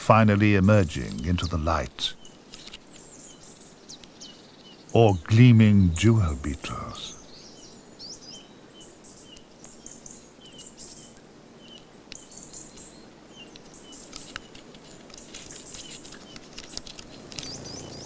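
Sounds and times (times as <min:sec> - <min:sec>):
small birds chirping: 0:00.0 - 0:18.0
faint clicks: 0:11.1 - 0:17.7.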